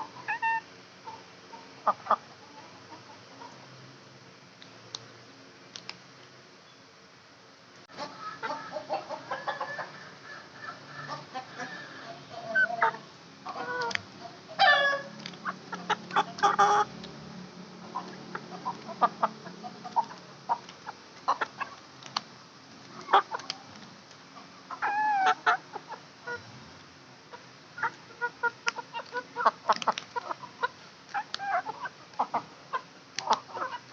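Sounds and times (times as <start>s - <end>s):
chickens clucking: 0.0s - 3.8s, 7.9s - 17.2s, 17.8s - 22.2s, 22.8s - 26.6s, 27.3s - 33.9s
sharp clicks: 5.7s - 6.3s.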